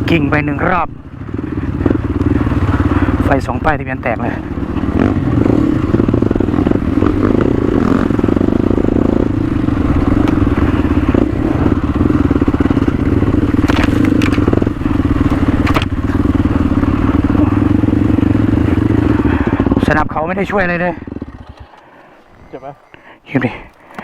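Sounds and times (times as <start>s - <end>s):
motorcycle engine running: 0.0s - 23.8s
sharp clicks: 21.4s - 22.1s.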